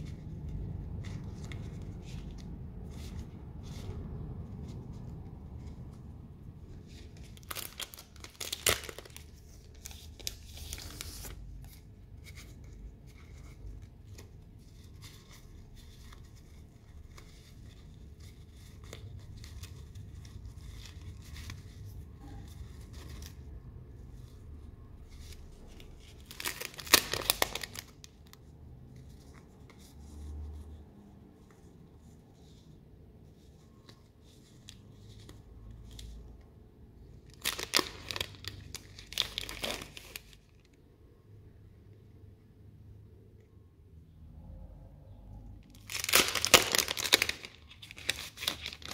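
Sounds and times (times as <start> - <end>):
packaging rustling and tearing: 6.6 - 12.6, 25.0 - 28.4, 37.2 - 40.7, 45.7 - 48.9.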